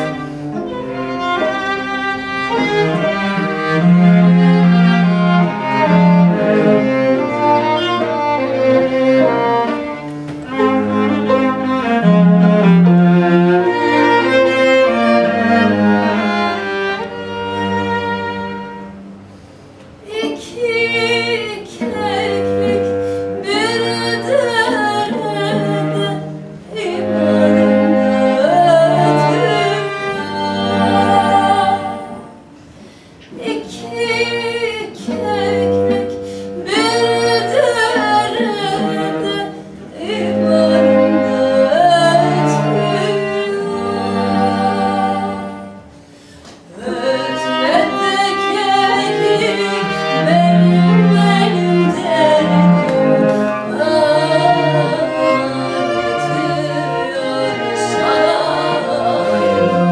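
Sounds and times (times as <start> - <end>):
bowed string trio: 0.0 - 59.9
woman singing folk song: 20.0 - 32.4, 33.2 - 45.7, 46.6 - 59.9.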